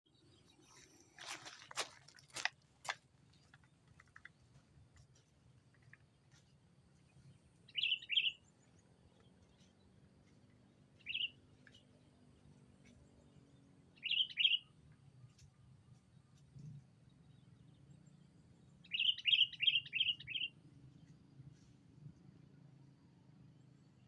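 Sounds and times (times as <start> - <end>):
bird calling: 7.7 - 8.5, 11.0 - 11.8, 14.0 - 14.7, 18.8 - 20.5.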